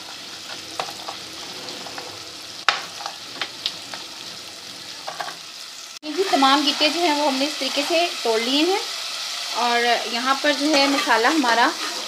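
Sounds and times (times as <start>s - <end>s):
masala sizzling: 0.0s - 12.0s.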